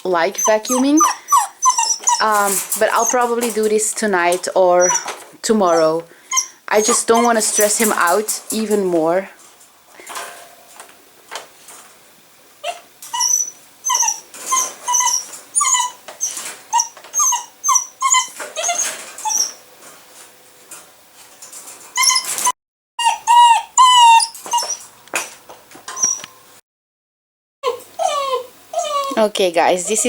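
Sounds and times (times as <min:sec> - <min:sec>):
puppy whining: 0:00.0 - 0:08.8, 0:12.6 - 0:19.7, 0:21.9 - 0:24.9, 0:25.9 - 0:26.4, 0:27.6 - 0:29.3.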